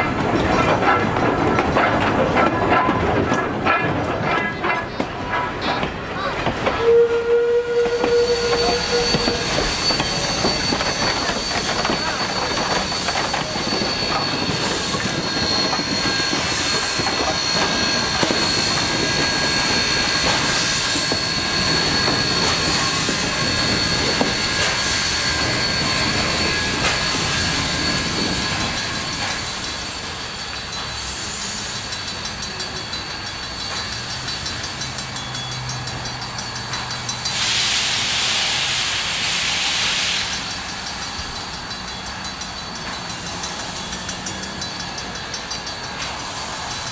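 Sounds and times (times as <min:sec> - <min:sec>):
wheels beating over rail joints: 0:00.0 - 0:06.9
train running rumble: 0:00.0 - 0:46.9
train wheels squealing on rails: 0:00.0 - 0:46.9.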